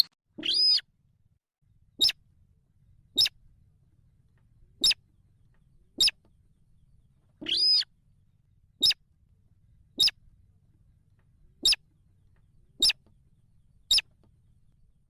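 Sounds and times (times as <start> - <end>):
rail chicks peeping: 2.0 - 2.2, 3.1 - 3.4, 4.8 - 5.0, 5.9 - 6.2, 6.9 - 7.9, 8.8 - 9.0, 9.9 - 10.2, 11.6 - 11.9, 12.7 - 13.1, 13.8 - 14.2.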